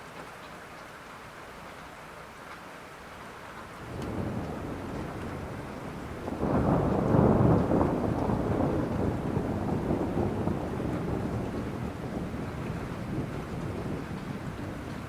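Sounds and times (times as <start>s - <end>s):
steady rain: 0.0s - 15.0s
thunder rumbling: 3.8s - 15.0s.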